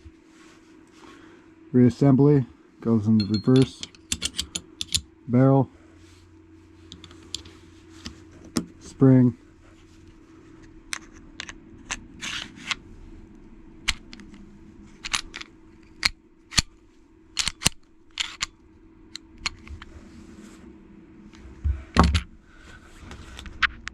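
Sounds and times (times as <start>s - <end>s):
pistol parts clicking metallically: 3.2s - 5.1s, 17.3s - 19.6s.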